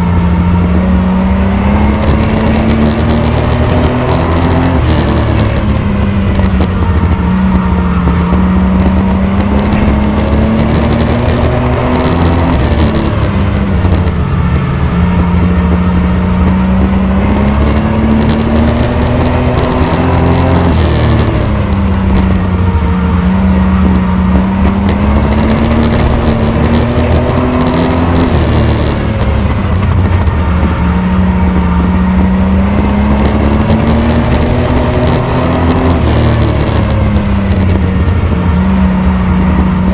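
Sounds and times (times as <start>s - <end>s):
race truck engine running hard: 0.0s - 39.9s.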